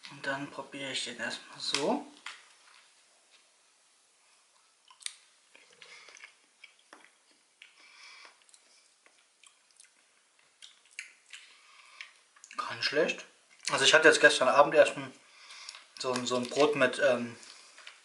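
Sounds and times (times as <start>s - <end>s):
quiet chewing: 4.4s - 12.6s, 15.4s - 16.7s
small mouth clicks: 4.8s - 12.6s.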